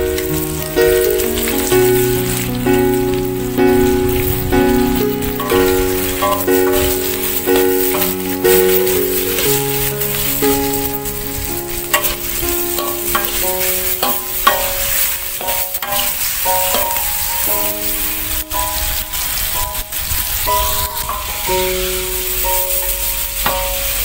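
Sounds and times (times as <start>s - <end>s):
background music: 0.0s - 24.0s
food sizzling in a wok: 0.0s - 24.0s
metal spatula scraping a pan: 5.2s - 18.0s.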